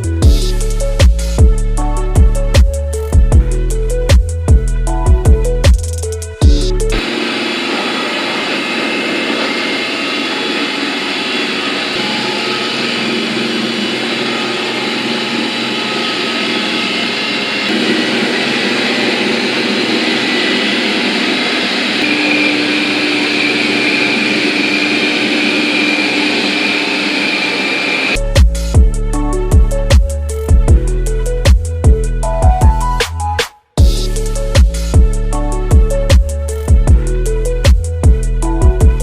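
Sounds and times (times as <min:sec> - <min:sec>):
vacuum whine: 0:06.4 - 0:33.0.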